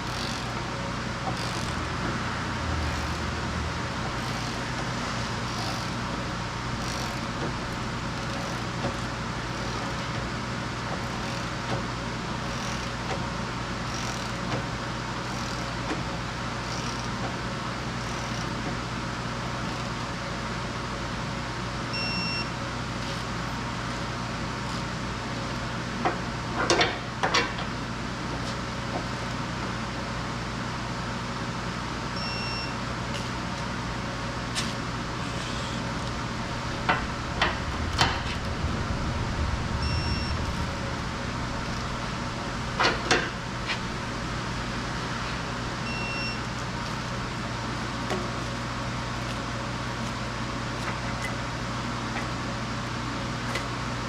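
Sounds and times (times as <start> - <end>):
low mechanical hum: 0.0 - 54.0
short electronic beep: 39.8 - 40.5.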